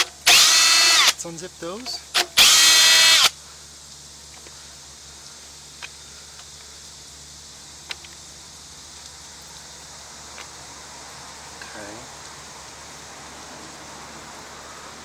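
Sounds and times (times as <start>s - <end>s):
power drill motor whine: 0.0s - 1.2s, 2.2s - 3.4s.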